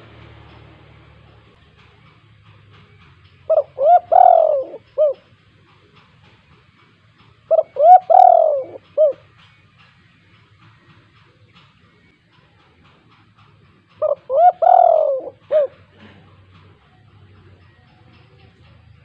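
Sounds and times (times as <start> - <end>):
dove cooing: 3.5 - 5.3, 7.5 - 9.3, 14.0 - 16.2.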